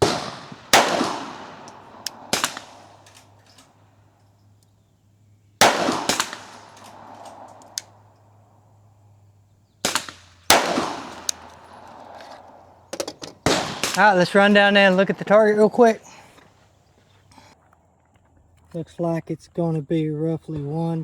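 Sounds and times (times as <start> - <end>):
pistol shots with echo: 0.0 - 4.1, 5.6 - 9.1, 9.8 - 16.5.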